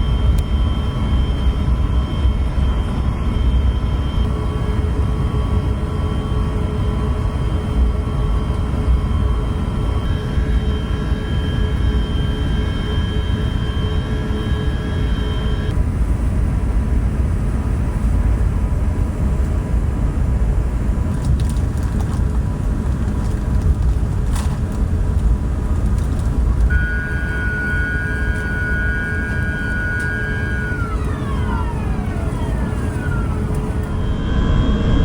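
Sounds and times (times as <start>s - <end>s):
jet engine cabin rumble: 0.0s - 35.0s
high thin whine: 26.7s - 35.0s.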